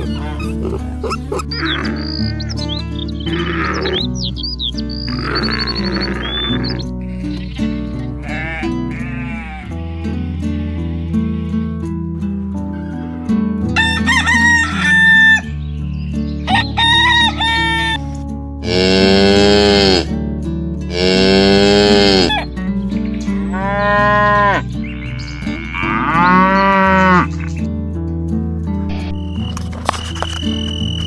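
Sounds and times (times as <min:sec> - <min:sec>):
animal calls: 0:00.0 - 0:11.1, 0:12.7 - 0:15.6, 0:16.4 - 0:18.0, 0:18.6 - 0:20.1, 0:20.9 - 0:27.7
background music: 0:00.0 - 0:31.0.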